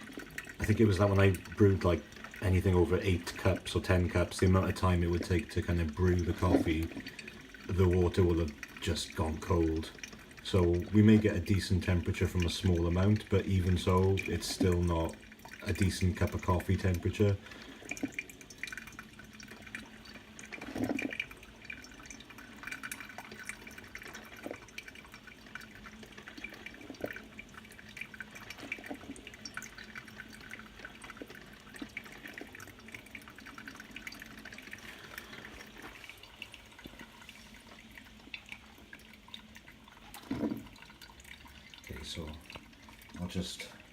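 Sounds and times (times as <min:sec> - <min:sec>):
coffee maker water dripping: 0:00.0 - 0:43.9.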